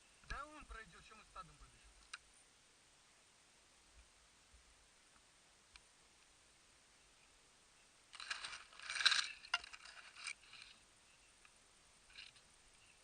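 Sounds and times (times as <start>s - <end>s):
close rustling and scraping: 8.1s - 11.5s, 12.1s - 13.0s.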